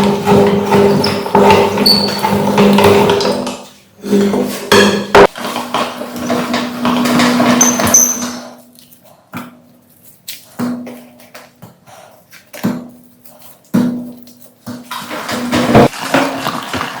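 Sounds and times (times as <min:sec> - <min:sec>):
meat grinder metallic knocking: 0:00.0 - 0:03.6, 0:04.7 - 0:08.6.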